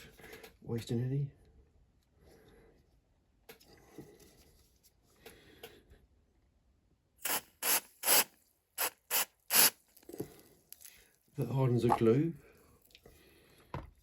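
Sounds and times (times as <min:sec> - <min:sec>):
aerosol spray hissing bursts: 0:07.2 - 0:09.8.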